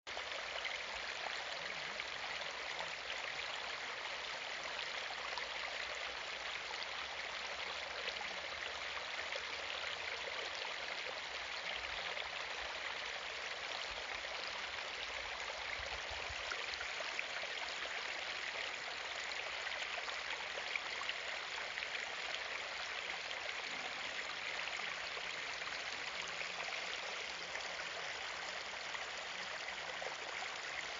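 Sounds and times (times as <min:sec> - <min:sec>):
water trickling: 0:14.9 - 0:30.9.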